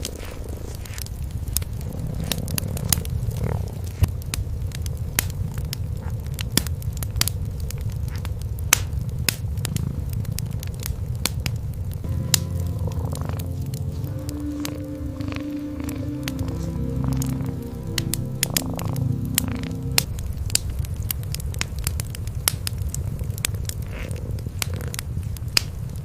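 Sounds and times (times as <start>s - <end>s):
cats purring: 0.0s - 4.2s, 9.5s - 10.7s, 12.8s - 20.1s, 22.7s - 26.0s
wood fire crackling: 0.0s - 26.0s.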